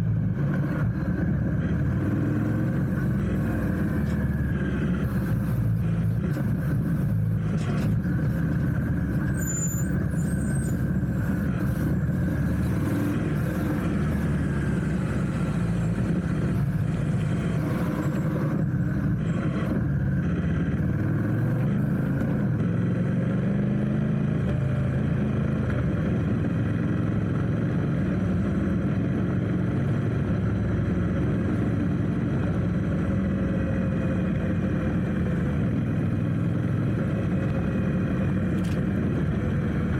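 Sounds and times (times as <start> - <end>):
engine speeding up: 0.0 - 39.9
traffic engines running: 0.0 - 39.9.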